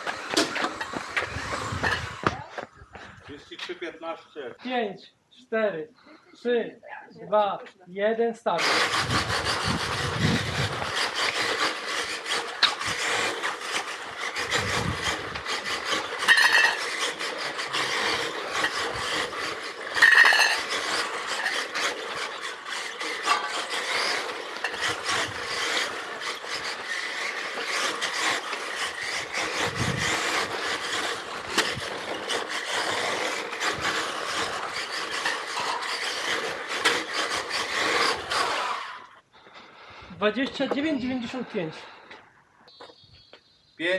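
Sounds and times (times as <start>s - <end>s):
electric motor whine: 0.0s - 2.7s, 8.6s - 39.2s
tyres scraping on pavement: 0.0s - 4.5s, 8.6s - 39.2s.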